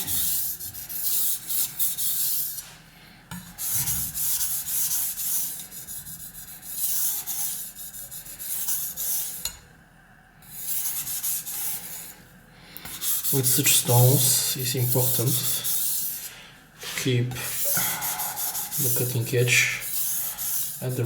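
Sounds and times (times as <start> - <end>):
knife scraping on wet whetstone: 14.8 - 16.3, 19.8 - 21.0.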